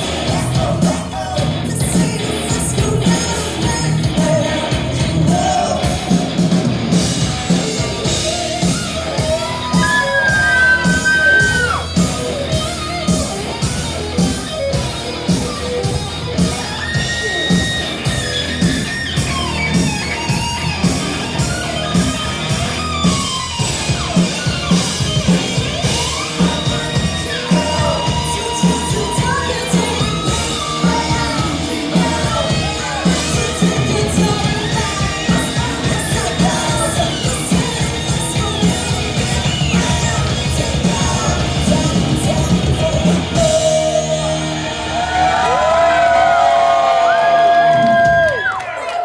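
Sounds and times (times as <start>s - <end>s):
person singing: 0.0s - 6.5s, 7.7s - 12.1s, 25.8s - 44.9s
drums keeping a steady beat: 0.0s - 48.6s
electric guitar: 0.0s - 49.0s.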